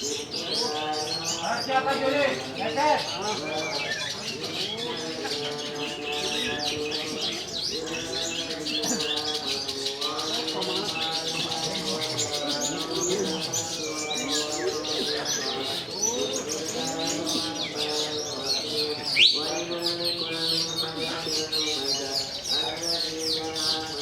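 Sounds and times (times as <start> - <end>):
birds singing in chirping trills: 0.0 - 24.0.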